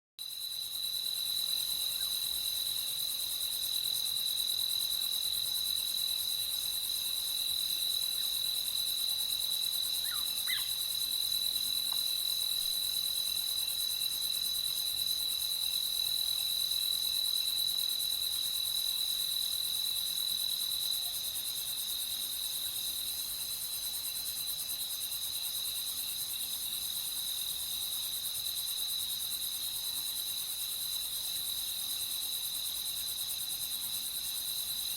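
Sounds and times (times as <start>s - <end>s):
high hiss of insect calls: 4.9s - 34.9s
insects trilling: 7.4s - 14.4s.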